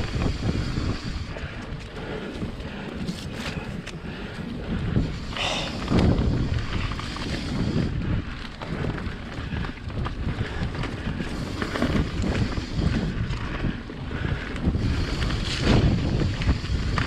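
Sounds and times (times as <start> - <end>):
bike rattles and knocks: 0.0 - 17.0
wind buffeting microphone: 0.0 - 17.0.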